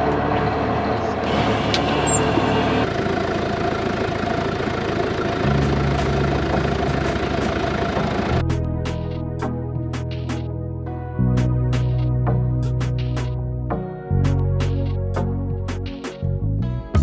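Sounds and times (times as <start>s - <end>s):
tractor engine running: 0.0s - 10.5s.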